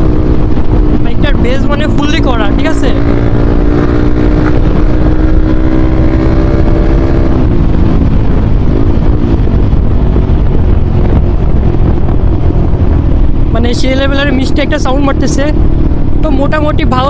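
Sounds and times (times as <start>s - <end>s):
motorcycle exhaust note: 0.0s - 17.0s
wind on microphone: 0.0s - 17.0s.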